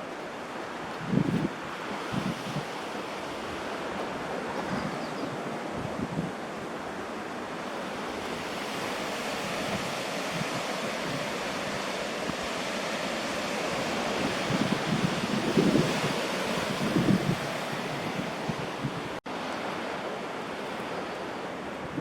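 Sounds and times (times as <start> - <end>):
ocean surf: 0.0 - 22.0
wind on microphone: 0.8 - 6.9, 8.2 - 19.2.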